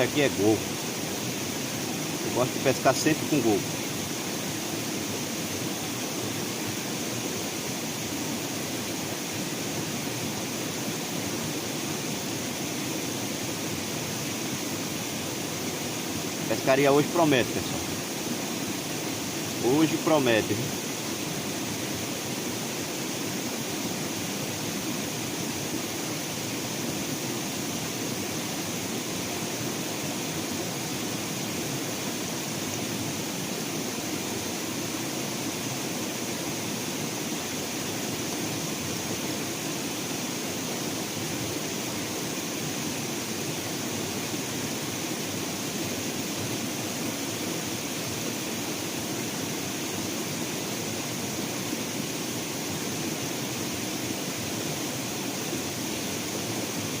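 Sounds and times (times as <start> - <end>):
steady outdoor hiss: 0.0 - 57.0.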